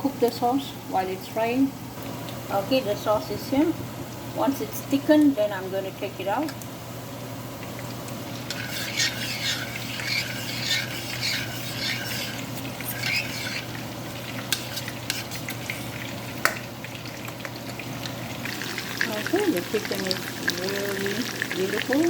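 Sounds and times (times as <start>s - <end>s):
chicken sizzling in oil: 7.6s - 22.0s
utensil scraping in a pan: 8.3s - 16.6s.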